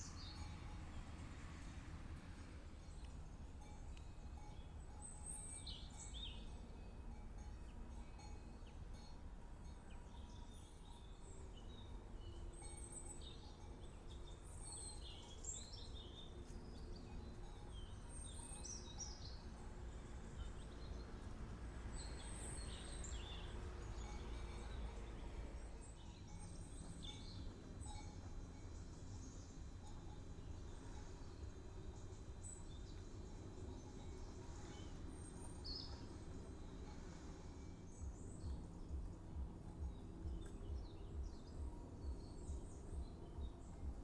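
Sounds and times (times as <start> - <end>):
birds chirping: 9.7 - 44.0.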